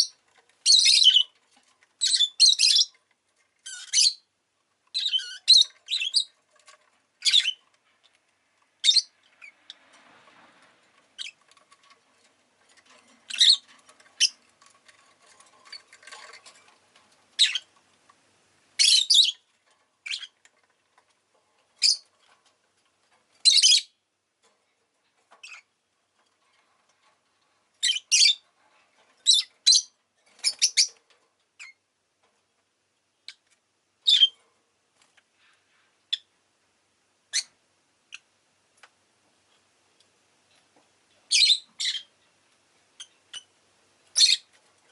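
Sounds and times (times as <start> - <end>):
lovebird high-pitched chirps: 0.0 - 1.4, 2.0 - 3.0, 3.6 - 4.3, 4.9 - 6.4, 7.2 - 7.6, 8.8 - 9.8, 11.2 - 11.4, 13.2 - 14.4, 17.4 - 17.7, 18.8 - 19.4, 20.0 - 20.4, 21.8 - 22.1, 23.4 - 24.0, 25.4 - 25.7, 27.8 - 28.4, 29.2 - 31.0, 34.0 - 34.4, 37.3 - 37.5, 41.3 - 42.1, 43.0 - 43.5, 44.1 - 44.5.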